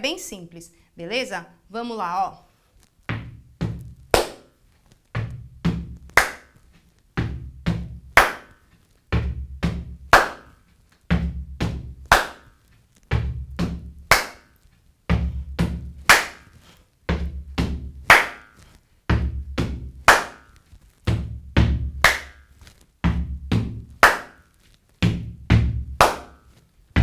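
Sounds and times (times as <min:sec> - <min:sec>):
rubber boots stamping on platform: 0:03.0 - 0:14.4, 0:15.1 - 0:16.4, 0:17.1 - 0:24.3, 0:25.0 - 0:26.3
hand strike: 0:03.7 - 0:04.5, 0:06.0 - 0:06.6, 0:08.2 - 0:08.5, 0:10.1 - 0:10.5, 0:12.1 - 0:12.5, 0:14.1 - 0:14.5, 0:16.1 - 0:16.5, 0:18.0 - 0:19.2, 0:20.1 - 0:20.5, 0:22.0 - 0:24.4, 0:25.5 - 0:26.4.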